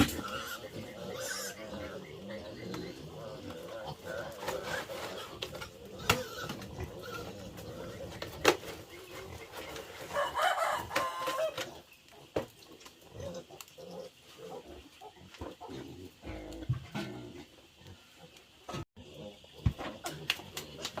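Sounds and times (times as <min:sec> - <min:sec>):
rooster crowing: 0:10.1 - 0:11.6.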